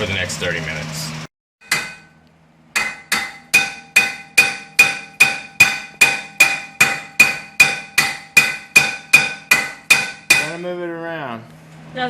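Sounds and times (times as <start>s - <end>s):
hammer striking metal rotor: 1.6s - 10.7s.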